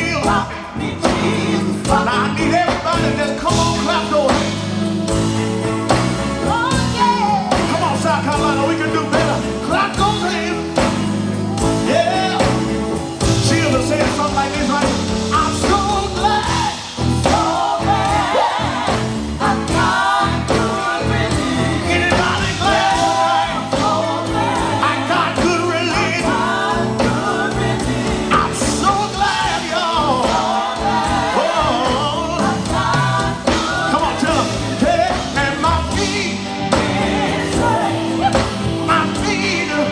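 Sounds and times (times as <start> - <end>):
band with guitar bass and keyboard: 0.0 - 39.9
gospel quartet singing: 0.0 - 39.9.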